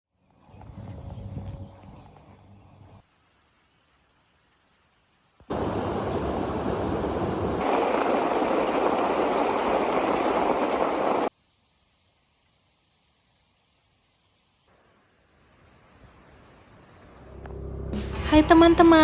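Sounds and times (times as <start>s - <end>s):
loud rushing water: 5.5s - 11.3s.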